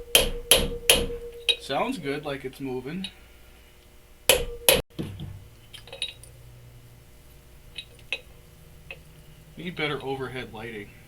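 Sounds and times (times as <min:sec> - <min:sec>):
hammer blows on metal: 0:00.0 - 0:01.7, 0:04.3 - 0:04.8.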